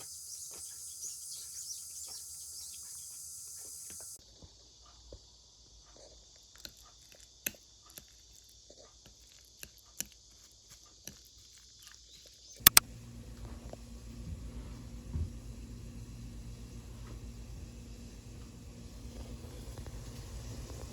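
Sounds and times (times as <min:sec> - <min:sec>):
high insect drone: 0:00.0 - 0:04.2, 0:11.7 - 0:20.9
sharp loud clicks: 0:12.6 - 0:12.9.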